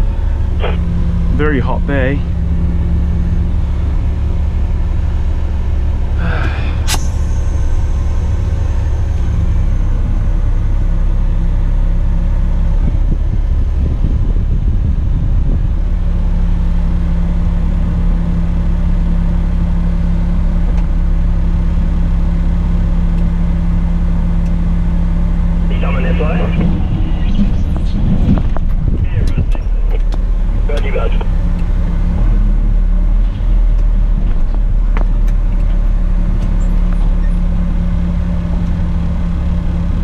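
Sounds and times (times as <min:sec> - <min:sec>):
diesel truck engine running: 0:00.0 - 0:40.0
short hiss: 0:06.5 - 0:07.6
sharp click: 0:06.9 - 0:07.3.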